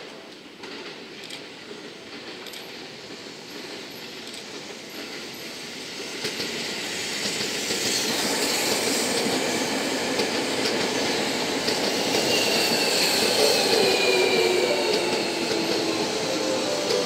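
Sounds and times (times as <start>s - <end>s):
rail-joint clicks: 0.0s - 9.4s, 10.1s - 17.0s
electric train rolling past: 0.1s - 17.0s
high squeal of braking train: 2.5s - 17.0s.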